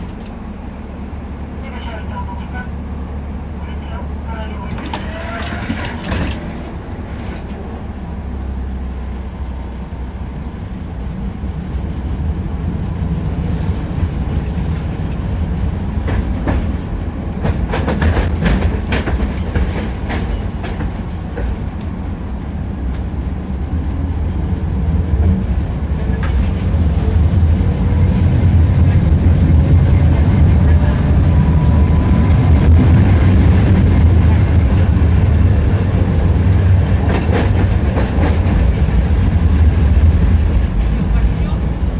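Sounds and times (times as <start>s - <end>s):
tram rumbling: 0.0s - 41.9s
wheels clacking over rail joints: 4.7s - 7.8s, 13.4s - 31.3s, 32.7s - 41.6s.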